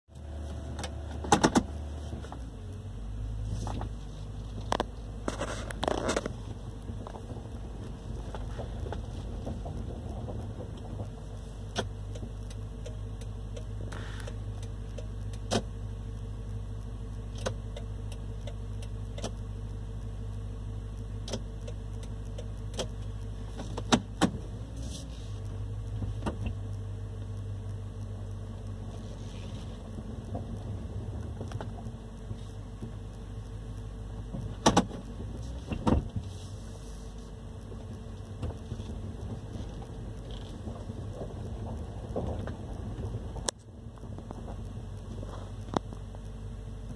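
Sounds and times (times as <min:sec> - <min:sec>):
engine idling hum: 0:00.1 - 0:46.9
sharp clicks and knocks: 0:00.7 - 0:02.4, 0:03.6 - 0:15.8, 0:17.3 - 0:19.5, 0:21.2 - 0:24.8, 0:25.4 - 0:27.4, 0:29.7 - 0:36.3, 0:37.6 - 0:46.9.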